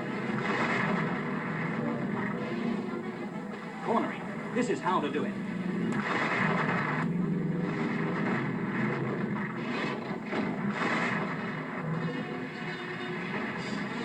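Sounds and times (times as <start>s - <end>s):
race car engines: 0.0s - 14.0s.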